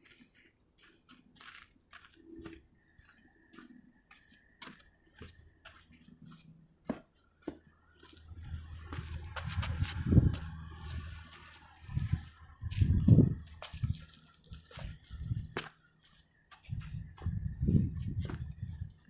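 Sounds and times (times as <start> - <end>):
footsteps crunching on trail: 0.0 - 19.0
low rumble: 8.2 - 15.5.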